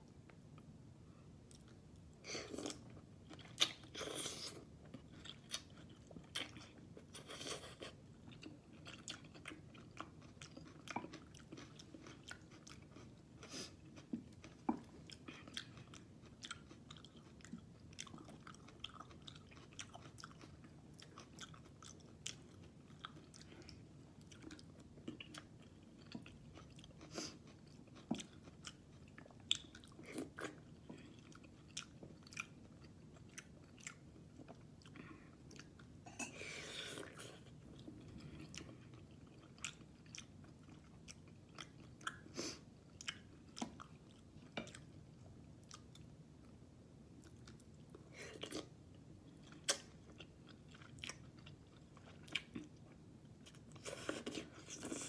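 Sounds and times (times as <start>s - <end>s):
person chewing: 1.5s - 45.0s, 47.2s - 55.0s.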